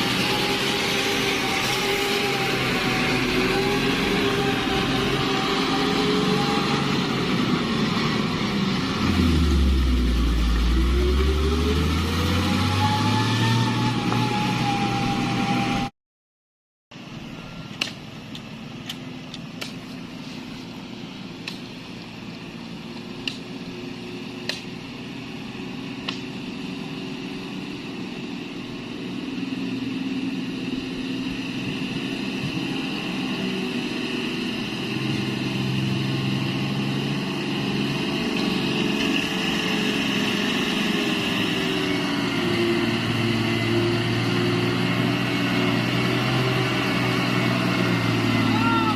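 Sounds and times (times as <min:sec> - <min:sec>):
truck diesel engine running: 0:00.0 - 0:15.8, 0:17.0 - 0:48.9.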